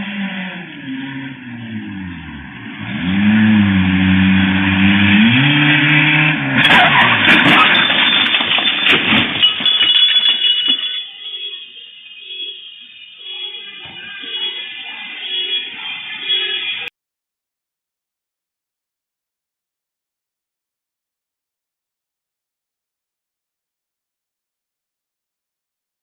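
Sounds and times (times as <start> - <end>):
car engine revving: 0.0 - 8.2.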